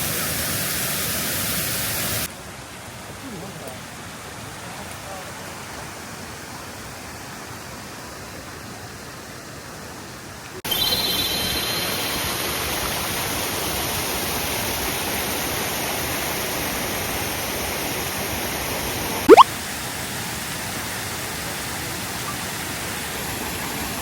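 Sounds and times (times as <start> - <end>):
water rushing: 11.2 - 24.0.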